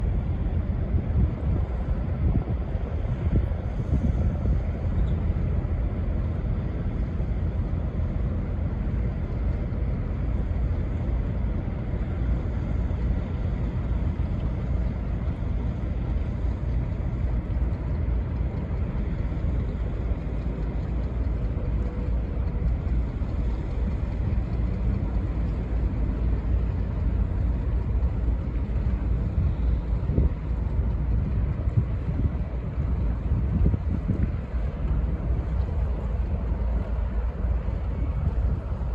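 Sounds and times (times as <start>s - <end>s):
boat engine rumbling: 0.0s - 38.9s
wind buffeting microphone: 0.0s - 38.9s.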